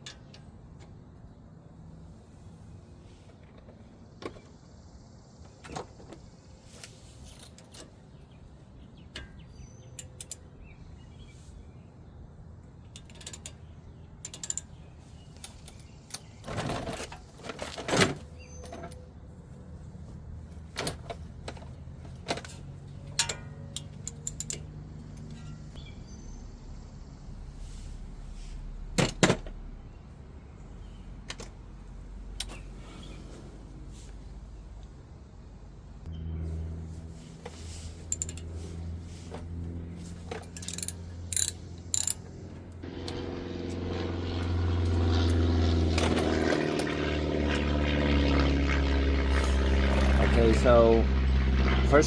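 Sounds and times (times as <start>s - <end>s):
clatter and scrape: 16.2s - 19.0s, 37.1s - 42.3s, 49.3s - 50.4s.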